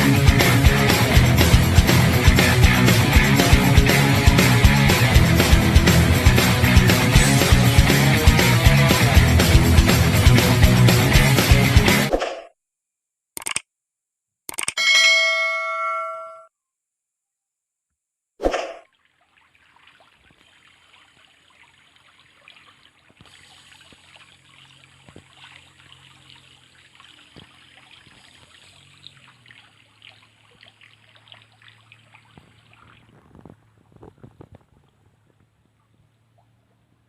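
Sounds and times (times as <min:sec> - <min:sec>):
water trickling and splashing: 0:18.8 - 0:37.0.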